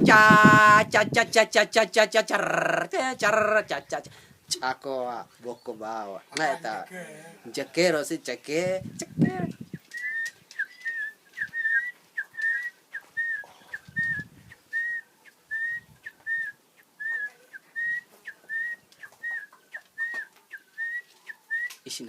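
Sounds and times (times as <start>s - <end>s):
man whistling short chirps: 10.0s - 15.0s.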